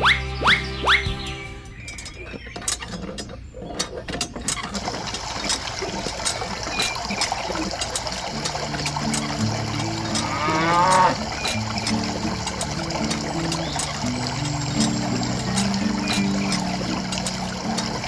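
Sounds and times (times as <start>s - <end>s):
background music: 0.0s - 2.4s
cow mooing: 10.1s - 11.3s.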